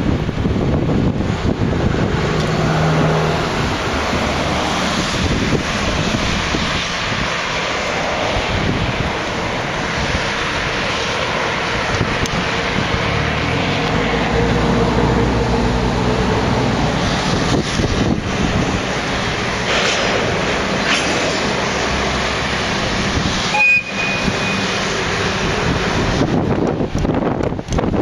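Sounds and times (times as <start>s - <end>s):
locomotive engine drone: 0.0s - 28.0s
train rumbling past: 1.2s - 26.9s
high squeal: 23.4s - 25.0s.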